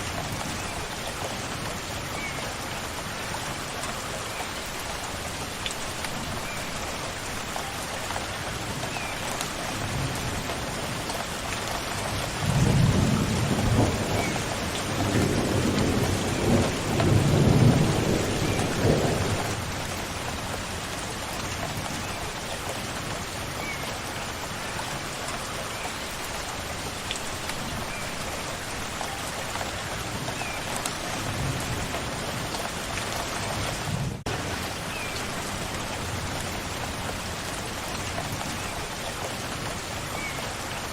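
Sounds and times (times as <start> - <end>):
steady rain falling: 0.0 - 40.9
thunder rumbling: 12.4 - 19.8.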